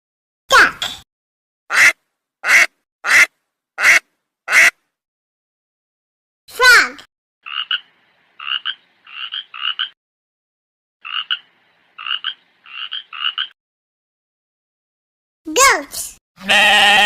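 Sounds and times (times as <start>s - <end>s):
frog croaking: 7.4s - 10.0s, 11.0s - 13.6s.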